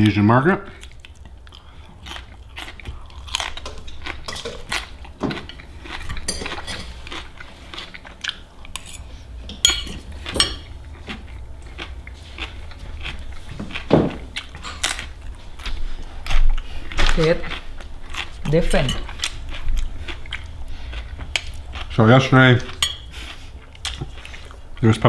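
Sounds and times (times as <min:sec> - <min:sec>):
cutlery clinking on a plate: 0:06.1 - 0:07.0, 0:08.8 - 0:10.8.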